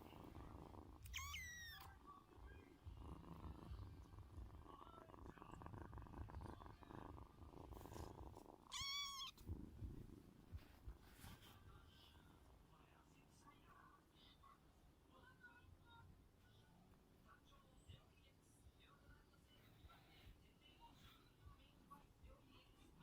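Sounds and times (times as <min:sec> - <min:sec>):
kitten purring: 0:00.0 - 0:14.6
kitten mewing: 0:00.6 - 0:02.0, 0:04.8 - 0:09.4.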